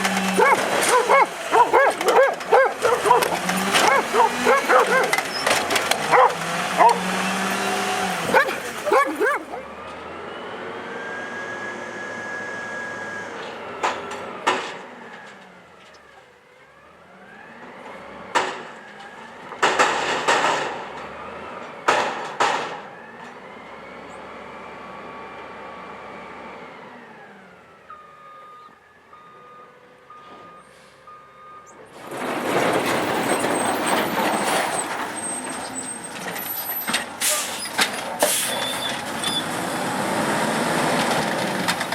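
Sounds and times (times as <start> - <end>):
loud rushing noise from truck: 0.0 - 15.3, 31.9 - 41.9.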